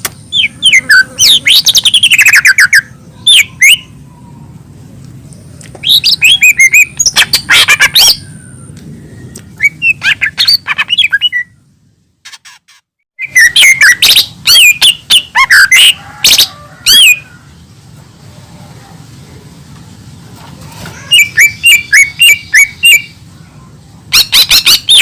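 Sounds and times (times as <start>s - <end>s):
bird singing whistles and chatter: 0.3s - 4.2s, 5.8s - 11.6s, 13.2s - 17.2s, 20.9s - 23.2s, 24.1s - 25.0s.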